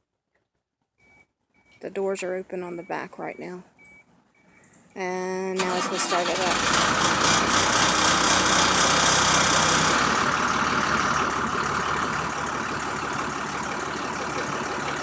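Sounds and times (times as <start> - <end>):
truck engine idling: 5.6 - 15.0.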